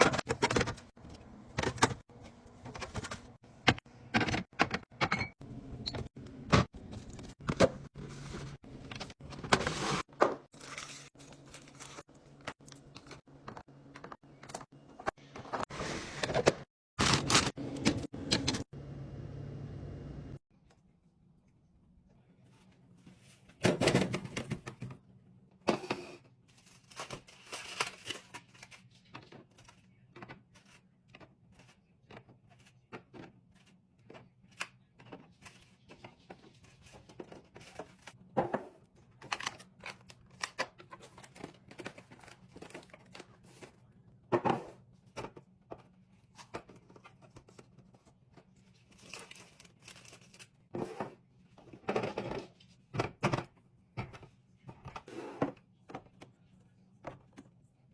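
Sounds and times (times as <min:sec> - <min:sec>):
food packaging crinkling and tearing: 0:26.5 - 0:30.0, 0:48.7 - 0:50.6.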